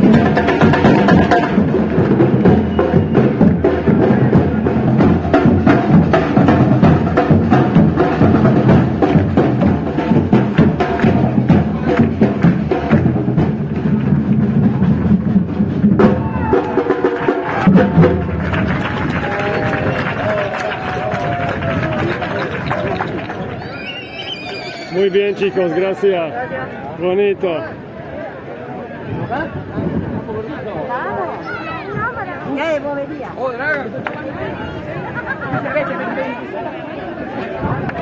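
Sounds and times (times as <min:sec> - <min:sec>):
drums: 0:00.0 - 0:25.5
voices: 0:18.8 - 0:38.0.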